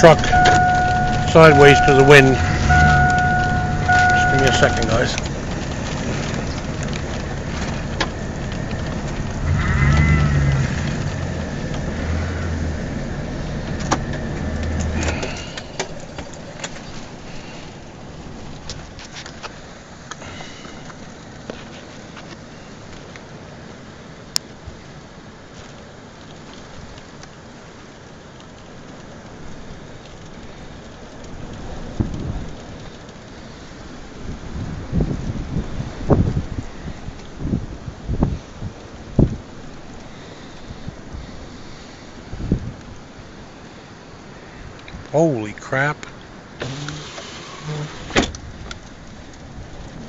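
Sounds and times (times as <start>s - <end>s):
wavering whine: 0.0s - 15.0s
thunder crack and rumble: 0.0s - 15.2s
truck engine revving: 0.0s - 15.4s
heavy rain on a truck: 0.0s - 50.0s.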